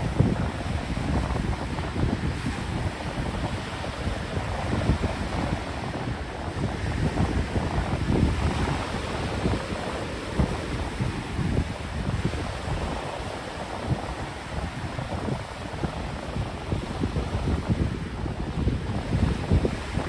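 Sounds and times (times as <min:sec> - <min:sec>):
ocean surf washing in: 0:00.0 - 0:20.0
wind buffeting microphone: 0:00.0 - 0:20.0.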